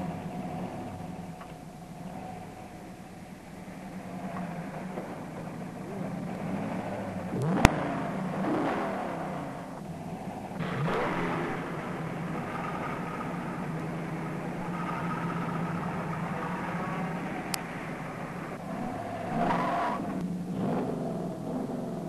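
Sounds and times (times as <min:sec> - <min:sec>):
car engine accelerating hard: 0:03.6 - 0:22.0.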